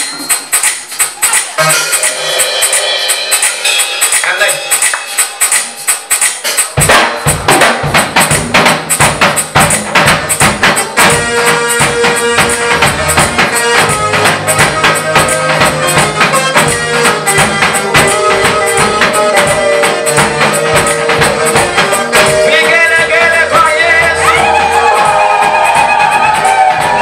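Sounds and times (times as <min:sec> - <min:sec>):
jingling percussion beat: 0:00.0 - 0:27.0
praise band playing upbeat music: 0:00.0 - 0:27.0.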